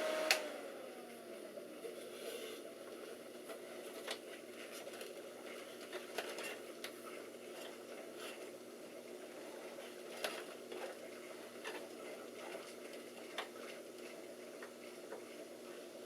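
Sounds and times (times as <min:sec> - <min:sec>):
computer fans humming: 0:00.0 - 0:02.0.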